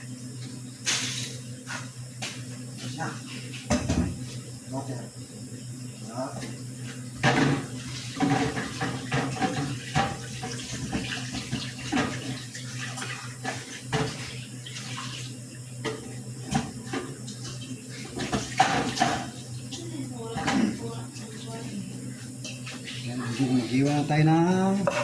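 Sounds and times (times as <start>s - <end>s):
steady low hum: 0.0s - 25.0s
water splashing in a sink: 7.8s - 15.6s.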